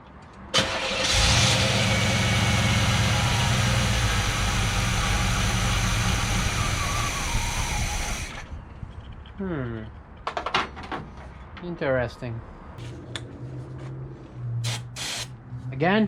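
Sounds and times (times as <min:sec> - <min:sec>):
car engine running roughly: 0:00.6 - 0:08.5.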